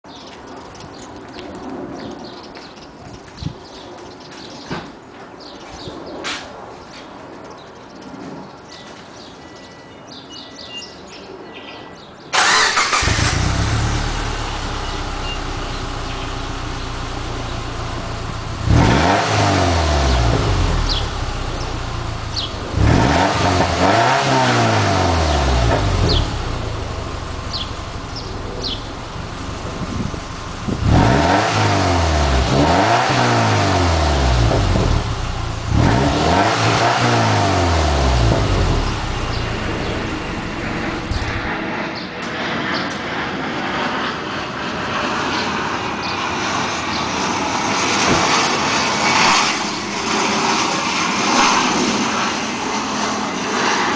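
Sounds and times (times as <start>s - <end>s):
car engine starting and revving: 12.4s - 41.6s.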